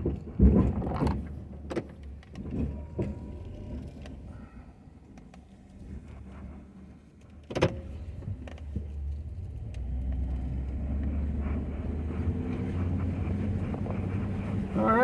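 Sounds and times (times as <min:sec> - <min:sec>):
pickup engine rumbling: 0:07.8 - 0:15.0.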